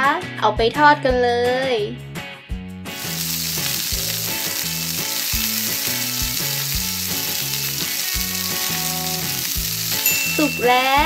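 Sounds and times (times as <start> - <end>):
light bouncy background music: 0.0 - 11.0
frying sizzle hiss: 2.9 - 11.0.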